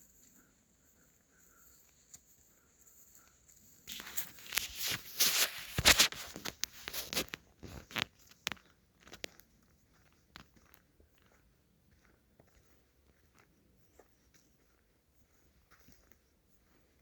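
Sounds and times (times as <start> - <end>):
close crunching and crackling: 3.2 - 9.5.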